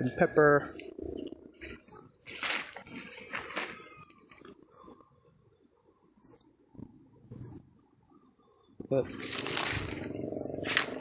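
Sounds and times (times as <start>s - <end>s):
rustling leaves and twigs: 0.0s - 5.0s, 8.9s - 11.0s.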